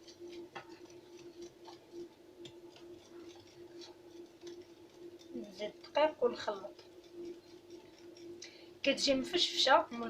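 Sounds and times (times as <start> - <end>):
utensil clicking against bowl: 0.0 - 8.6
faint steady hum: 0.0 - 10.0.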